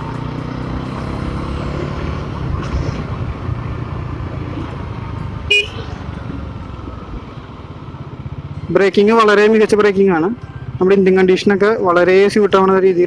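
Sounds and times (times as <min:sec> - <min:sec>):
motorcycle engine running: 0:00.0 - 0:12.9
road and wind noise: 0:00.0 - 0:13.0
vehicle horn toot: 0:05.5 - 0:06.0.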